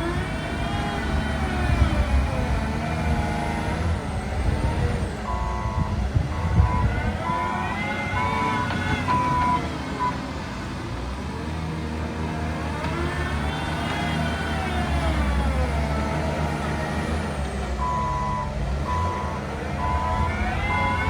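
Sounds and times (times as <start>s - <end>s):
heavy machine engine running: 0.0s - 21.0s
reversing alarm beeping: 5.3s - 10.2s, 17.8s - 21.0s.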